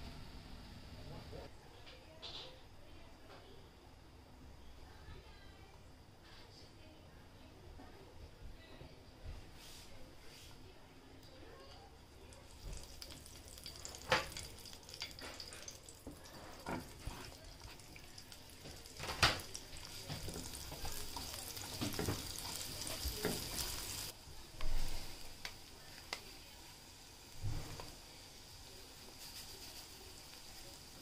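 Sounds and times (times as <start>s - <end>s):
onion sizzling in a frying pan: 12.2s - 31.0s.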